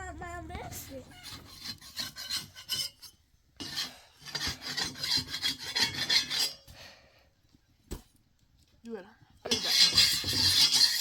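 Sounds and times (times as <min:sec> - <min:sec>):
rough rasping strokes: 0:00.8 - 0:06.7, 0:09.5 - 0:11.0.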